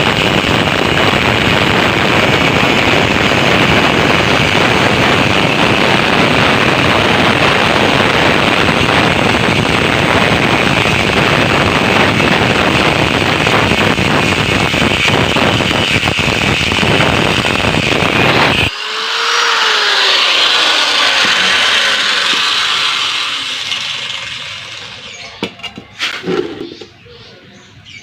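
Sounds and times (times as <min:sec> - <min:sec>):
angle grinder cutting steel: 0:00.0 - 0:26.8
grinder disc spinning down: 0:00.0 - 0:26.9.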